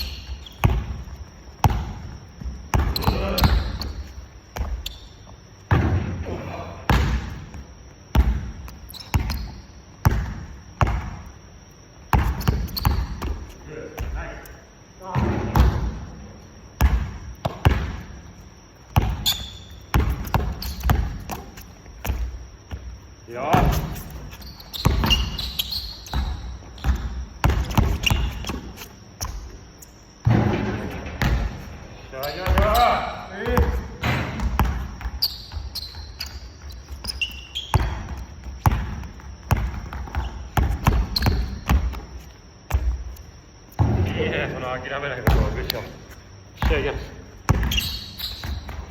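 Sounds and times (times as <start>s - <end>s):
basketball bouncing on gym floor: 0.0s - 11.4s, 12.0s - 14.4s, 15.0s - 16.2s, 16.8s - 29.6s, 30.2s - 48.9s
high squeak: 8.9s - 9.7s, 19.2s - 19.8s, 20.5s - 20.9s, 23.7s - 26.9s, 27.6s - 28.9s, 35.1s - 38.0s, 47.6s - 48.9s.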